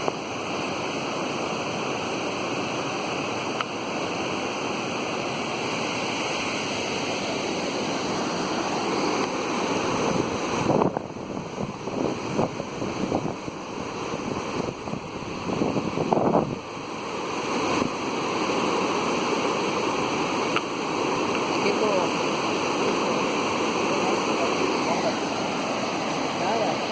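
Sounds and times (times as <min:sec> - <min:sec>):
waterfall rushing: 0:00.0 - 0:26.9
wind buffeting microphone: 0:09.4 - 0:18.1.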